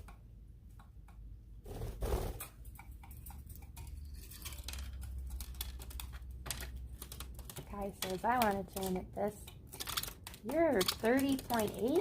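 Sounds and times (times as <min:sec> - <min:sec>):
bird claws clicking and tapping: 0:02.5 - 0:12.0.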